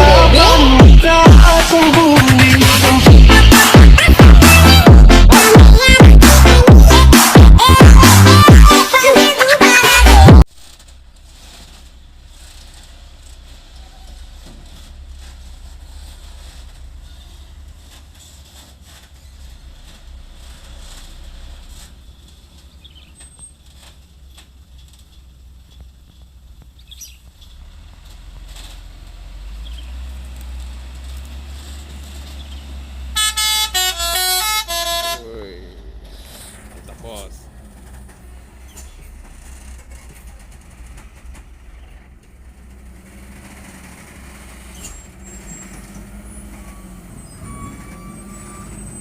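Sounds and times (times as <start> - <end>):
low outdoor rumble: 0.0 - 49.0
truck air horn: 33.0 - 36.5.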